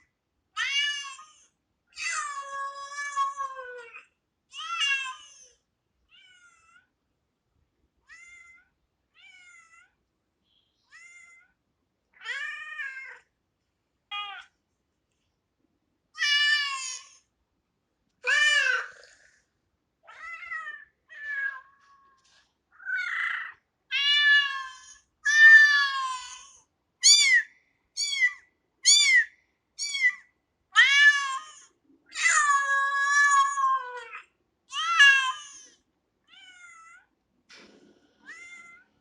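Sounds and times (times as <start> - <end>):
cat meowing: 0.6 - 1.4, 6.1 - 6.9, 8.0 - 10.0, 10.9 - 11.6, 12.2 - 13.3, 20.1 - 22.2, 22.8 - 27.4, 30.8 - 37.1, 38.2 - 38.9.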